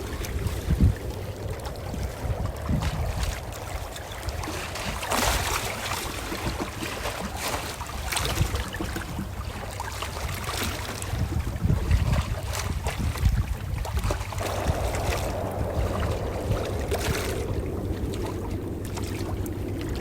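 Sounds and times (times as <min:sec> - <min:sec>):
ocean waves washing in: 0:00.0 - 0:08.2, 0:14.0 - 0:20.0.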